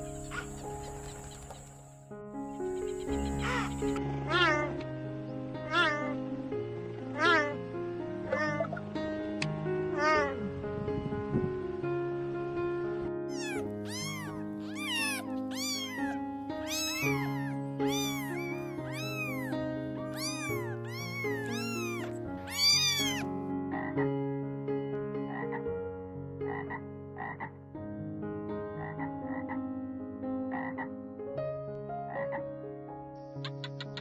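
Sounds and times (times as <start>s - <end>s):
frog croaking: 0.0s - 4.0s, 13.4s - 23.9s, 26.5s - 27.5s, 28.8s - 29.5s, 30.5s - 30.9s
cat meowing: 2.9s - 4.7s, 5.7s - 6.1s, 7.2s - 7.5s, 13.3s - 23.3s.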